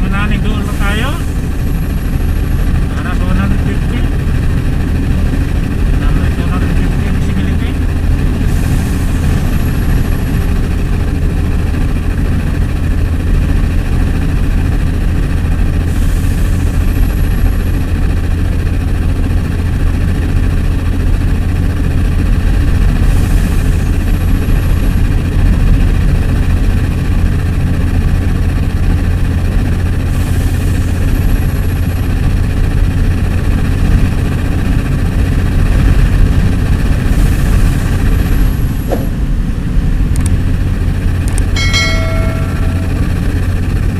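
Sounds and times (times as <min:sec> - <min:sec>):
diesel engine humming: 0:00.0 - 0:43.9
short high tone: 0:41.6 - 0:43.5.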